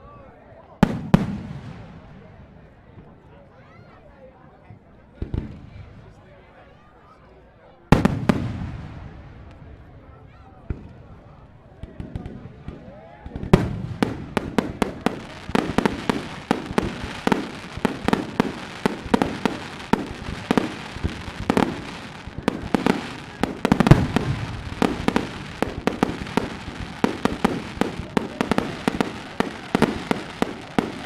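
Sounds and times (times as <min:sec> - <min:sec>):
fireworks cracking and banging: 0:05.2 - 0:06.1, 0:07.9 - 0:31.0
deep firework boom: 0:08.0 - 0:09.9, 0:13.4 - 0:31.0.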